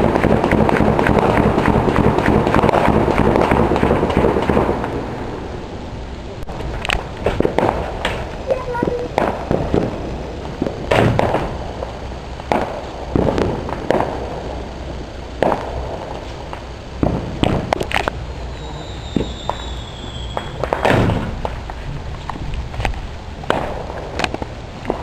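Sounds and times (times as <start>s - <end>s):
fireworks bangs: 0.0s - 25.0s
falling firework whistle: 18.3s - 21.5s.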